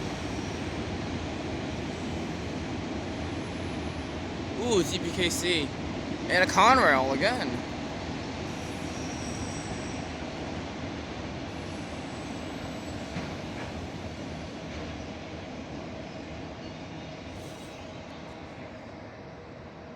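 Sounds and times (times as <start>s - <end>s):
faint wheel squeal: 8.5s - 10.2s, 11.6s - 13.7s
train wheels rumbling and rattling: 11.5s - 16.0s.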